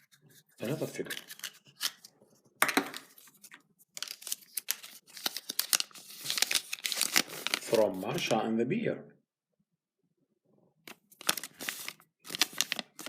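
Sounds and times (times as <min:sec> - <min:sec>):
wrapper tearing and crinkling: 0:03.3 - 0:08.2, 0:11.1 - 0:13.0.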